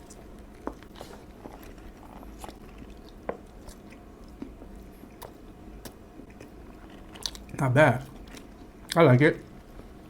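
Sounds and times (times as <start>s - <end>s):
mouth chewing crunchy food: 0.0s - 9.0s.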